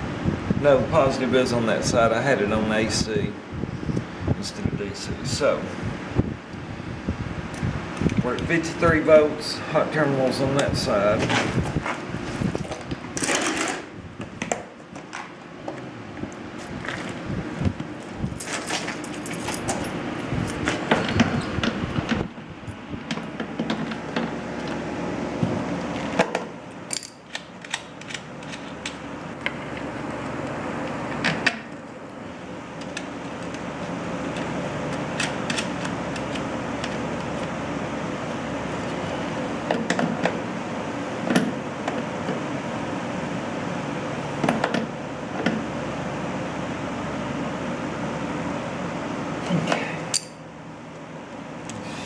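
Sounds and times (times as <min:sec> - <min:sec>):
background hum: 0:00.0 - 0:52.0
metal tools clinking: 0:18.4 - 0:21.2, 0:26.9 - 0:27.4, 0:50.1 - 0:50.4.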